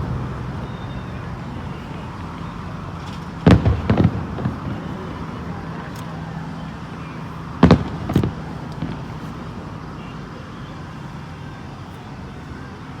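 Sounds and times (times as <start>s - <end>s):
background rumble: 0.0s - 10.6s
firework shells bursting: 2.9s - 6.9s, 7.5s - 9.7s.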